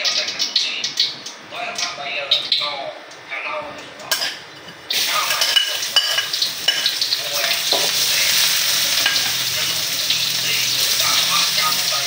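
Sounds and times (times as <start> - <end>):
food sizzling in hot oil: 4.1 - 12.0.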